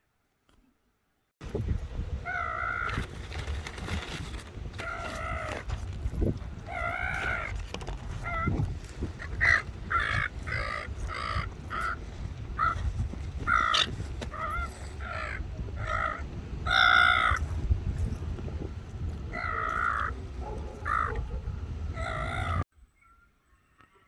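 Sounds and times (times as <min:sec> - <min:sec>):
steady low rumble: 0:01.4 - 0:22.6
bird giving harsh calls: 0:08.2 - 0:17.5, 0:19.3 - 0:23.2.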